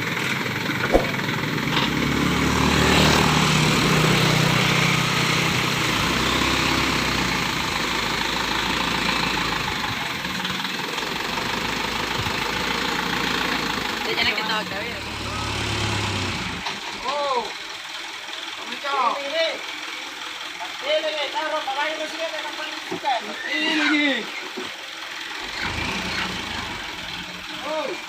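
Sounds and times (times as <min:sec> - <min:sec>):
truck engine running: 0:00.0 - 0:23.0, 0:24.7 - 0:28.0
sharp click: 0:00.9 - 0:01.2.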